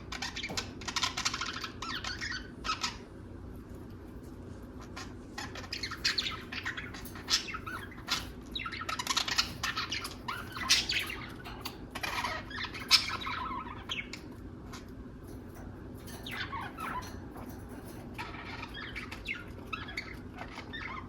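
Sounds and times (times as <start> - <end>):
budgerigars chattering: 4.8 - 21.0.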